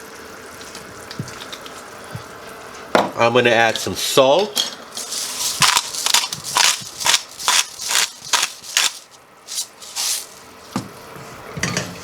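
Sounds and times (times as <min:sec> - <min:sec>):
salt rattling into a pan: 0:05.0 - 0:10.4.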